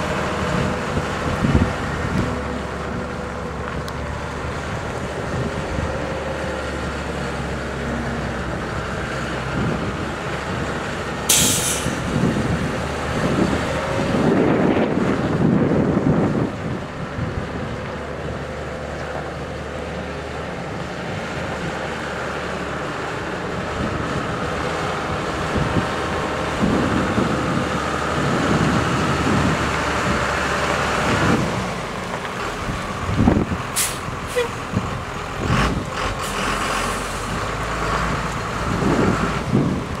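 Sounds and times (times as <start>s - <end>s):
diesel truck engine running: 0.0s - 40.0s
sharp hissing or clicking: 11.3s - 12.1s.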